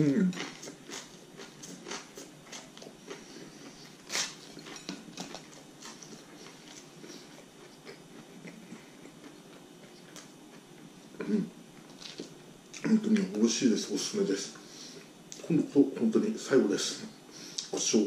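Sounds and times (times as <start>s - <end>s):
chewing toasted bread: 0.2s - 13.3s.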